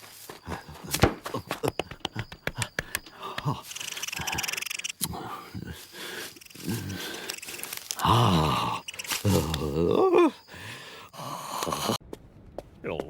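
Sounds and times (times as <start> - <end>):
grunting and sniffing vocal noises: 0.2 - 1.7, 2.3 - 12.0
cartoon clicks and knocks: 0.8 - 5.2
hissing: 2.8 - 11.1.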